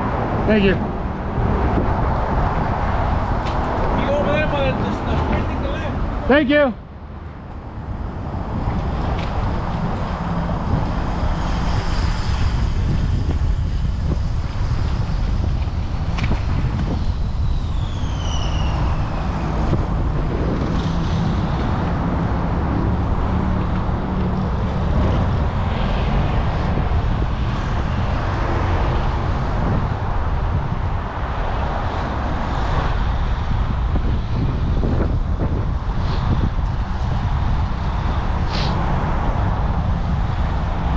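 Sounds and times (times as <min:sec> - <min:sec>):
traffic noise: 0:00.0 - 0:40.9
wind rumble: 0:00.0 - 0:40.9
high falling squeal: 0:16.9 - 0:20.2.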